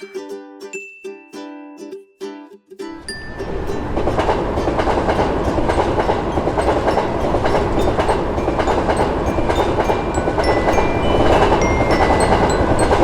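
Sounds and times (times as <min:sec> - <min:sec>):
train passing with wheel clatter: 0:03.0 - 0:13.0.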